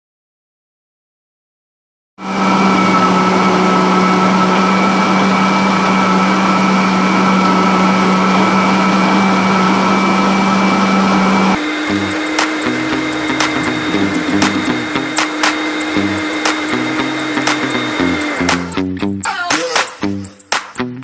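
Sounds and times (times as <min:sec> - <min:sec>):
vacuum cleaner humming: 0:02.2 - 0:18.8.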